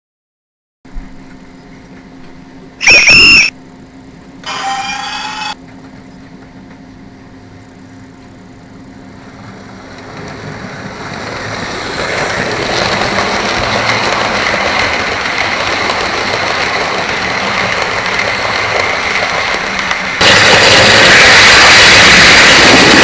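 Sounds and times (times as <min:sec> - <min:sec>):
model train running on track: 0:02.8 - 0:03.5, 0:04.4 - 0:05.6, 0:09.2 - 0:23.0.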